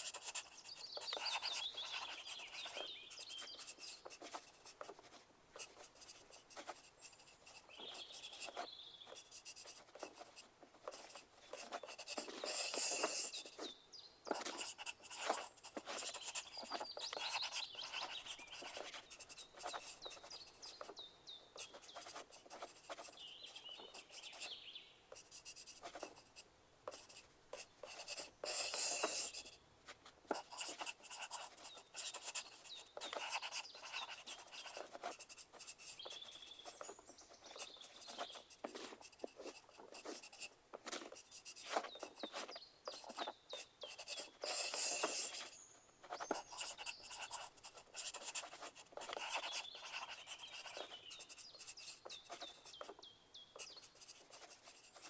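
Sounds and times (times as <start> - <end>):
pencil scratching on paper: 0.0 - 13.7, 14.3 - 21.0, 21.6 - 53.0, 53.6 - 55.0.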